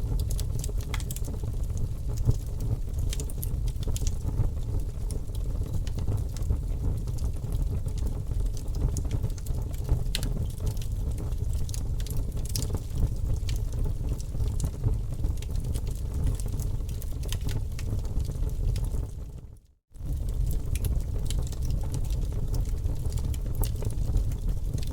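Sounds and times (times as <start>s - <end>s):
fire crackling and popping: 0.0s - 24.9s
fire low rumble: 0.0s - 24.9s.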